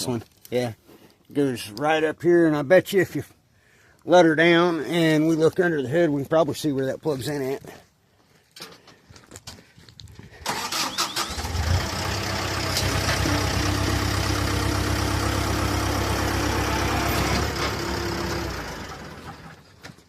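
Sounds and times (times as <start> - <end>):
engine starting and running: 10.4 - 20.0.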